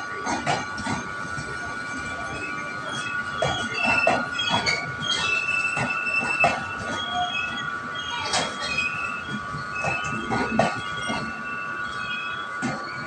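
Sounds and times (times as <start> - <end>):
train coaches rolling past: 0.0 - 13.0
knocks and clanks of wheels: 0.2 - 1.6, 2.9 - 7.6, 8.2 - 11.4, 12.6 - 12.9
high-pitched wheel squeal: 1.9 - 13.0.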